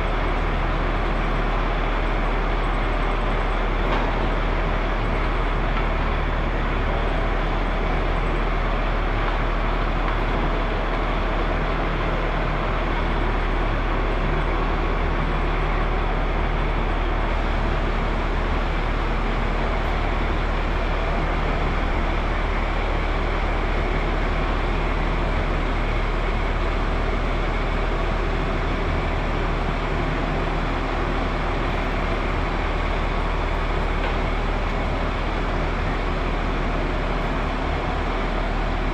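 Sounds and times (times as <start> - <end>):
machinery humming: 0.0 - 38.9.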